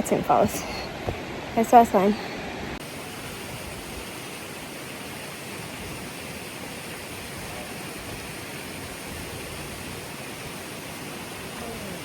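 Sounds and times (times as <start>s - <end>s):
waterfall pouring onto rocks: 2.8s - 12.0s.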